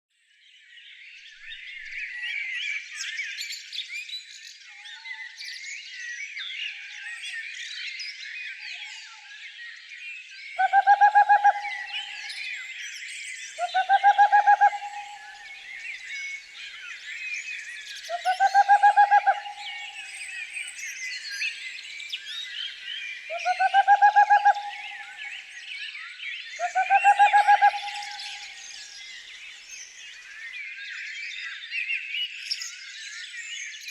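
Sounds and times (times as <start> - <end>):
songbirds chirping and singing: 0.6 - 33.9
low pulsing bird call: 10.6 - 12.6, 13.6 - 16.5, 18.1 - 20.6, 23.3 - 25.5, 26.6 - 28.7.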